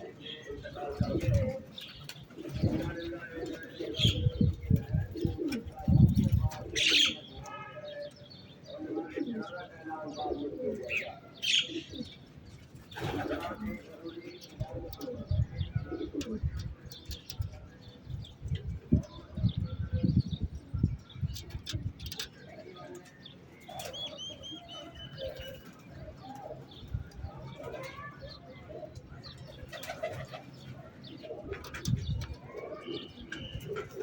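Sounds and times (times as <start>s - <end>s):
pigeons cooing: 0.0s - 7.4s, 8.1s - 20.3s, 21.3s - 34.0s
wind buffeting microphone: 0.5s - 6.9s, 12.8s - 22.2s, 31.2s - 33.9s.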